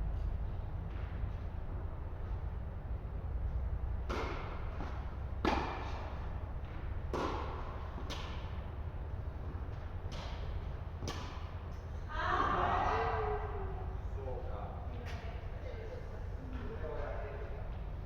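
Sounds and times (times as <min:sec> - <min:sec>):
steady low hum: 0:00.0 - 0:18.0
tennis ball struck and bouncing: 0:04.0 - 0:11.6.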